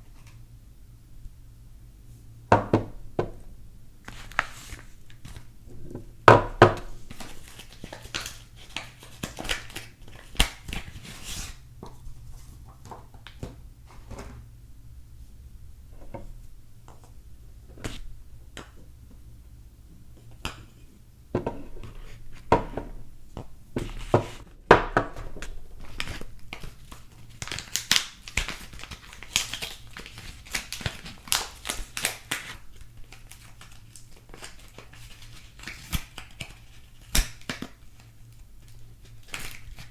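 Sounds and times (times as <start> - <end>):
wrapping crinkling and tearing: 4.0 - 5.5, 6.9 - 11.6, 25.4 - 39.9.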